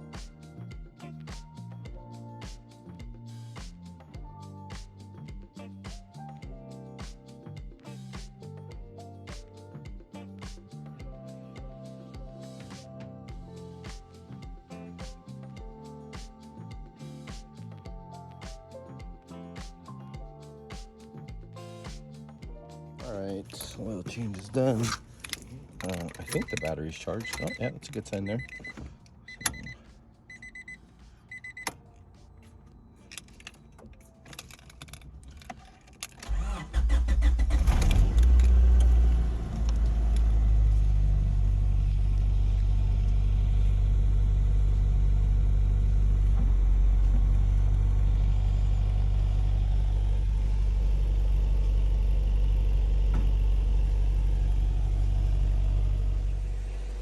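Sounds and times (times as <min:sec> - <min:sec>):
car starter cranking: 0:23.4 - 0:28.8, 0:33.2 - 0:41.1
beeping chime: 0:26.3 - 0:31.7
car engine revving and idling: 0:35.6 - 0:57.0.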